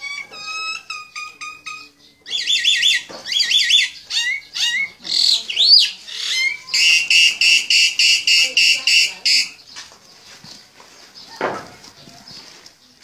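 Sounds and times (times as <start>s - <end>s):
bird chirping and whistling: 0.0s - 9.6s.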